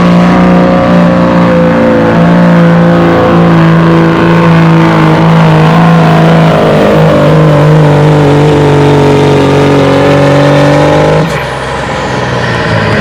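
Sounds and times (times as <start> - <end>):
diesel pickup engine revving: 0.0 - 13.0.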